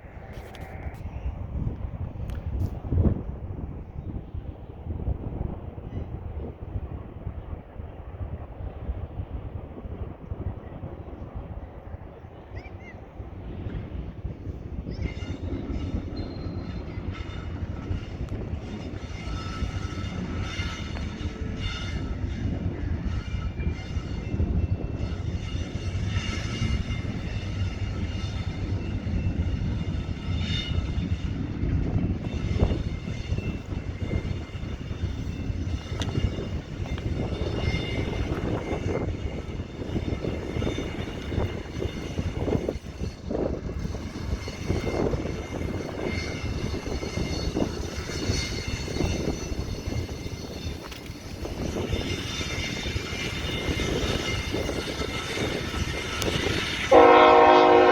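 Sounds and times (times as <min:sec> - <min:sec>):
freight train wheels rumbling on rails: 0:00.0 - 0:57.9
faint high wheel squeal: 0:11.6 - 0:57.6.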